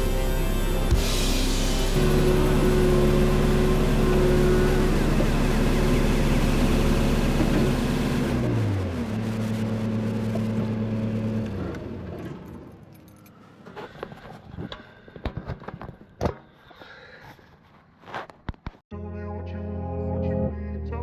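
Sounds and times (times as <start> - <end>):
dump truck engine running: 0.0 - 12.9.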